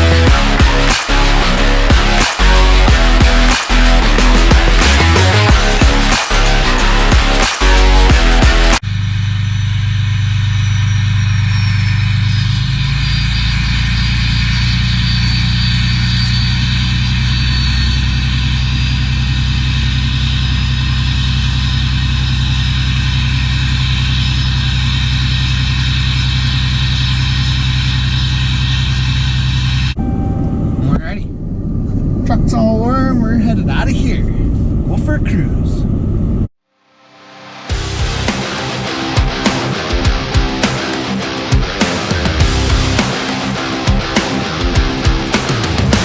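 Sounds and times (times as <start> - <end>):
diesel engine idling: 8.0 - 30.0
faint high whine: 8.8 - 32.3.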